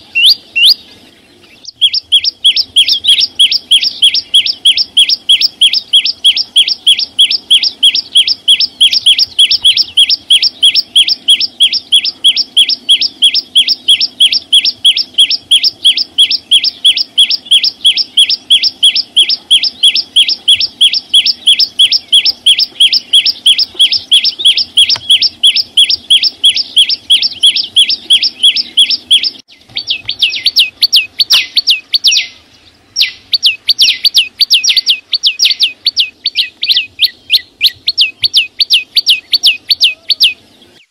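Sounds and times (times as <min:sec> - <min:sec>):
songbird singing sharp notes: 0:00.0 - 0:40.9.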